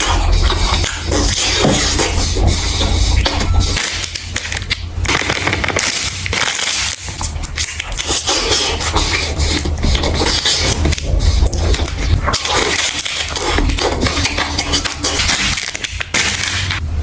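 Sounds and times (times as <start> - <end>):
crunchy food being chewed: 0.0 - 16.9.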